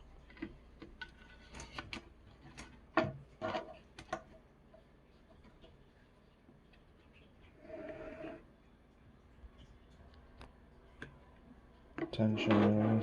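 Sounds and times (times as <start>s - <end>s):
quiet rubbing: 7.5s - 8.5s.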